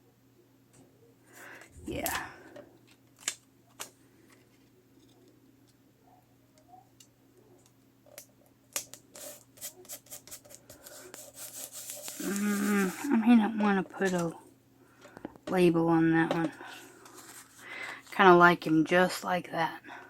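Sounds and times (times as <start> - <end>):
paper crackling and peeling: 8.8 - 13.2.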